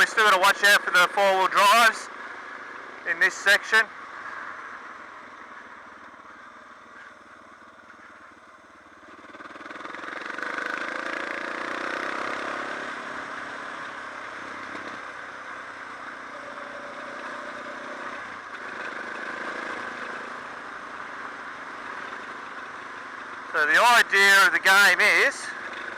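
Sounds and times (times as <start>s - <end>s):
motorcycle engine revving: 9.0s - 23.6s.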